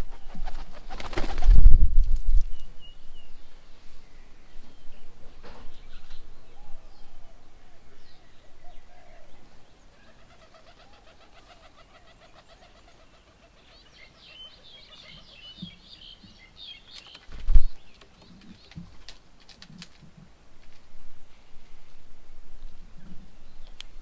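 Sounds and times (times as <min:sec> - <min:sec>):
birds calling: 0:02.5 - 0:20.4
high bird chirping: 0:05.8 - 0:18.8.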